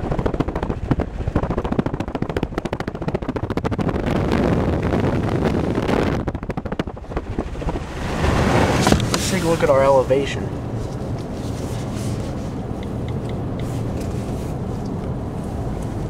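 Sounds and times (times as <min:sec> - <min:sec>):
car driving rumble: 0:00.0 - 0:16.0.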